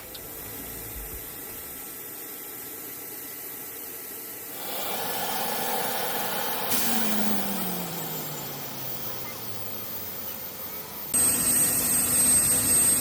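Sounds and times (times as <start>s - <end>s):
rushing mechanical noise: 4.5s - 13.0s.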